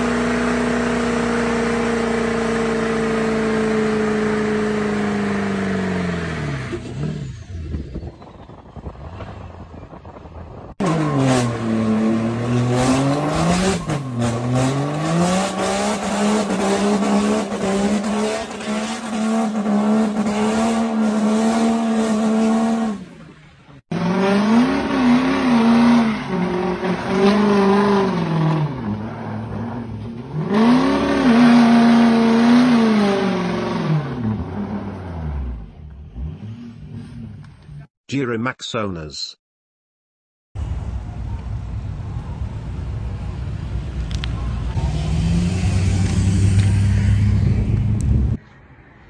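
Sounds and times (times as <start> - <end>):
diesel truck engine revving: 10.7 - 37.5, 44.1 - 48.4.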